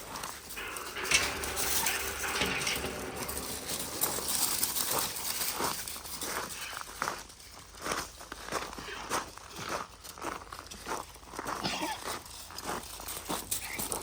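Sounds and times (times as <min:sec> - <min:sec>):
small clicks and knocks: 0:00.5 - 0:05.6.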